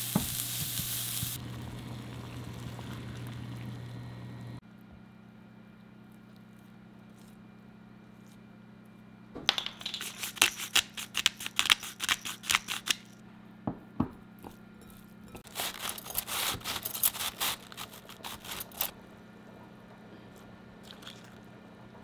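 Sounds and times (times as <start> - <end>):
cabbage shaved with slicer: 10.0 - 13.0, 15.4 - 18.9
food torn by hand: 15.5 - 18.8.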